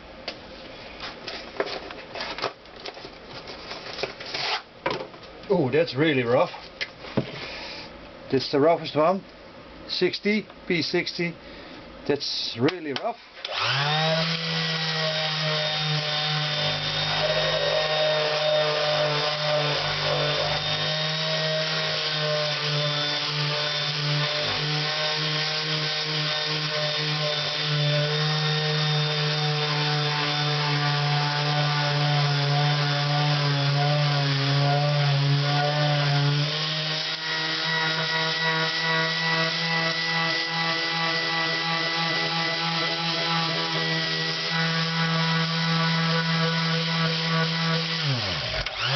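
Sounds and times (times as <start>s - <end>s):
power sander running: 13.5s - 48.9s.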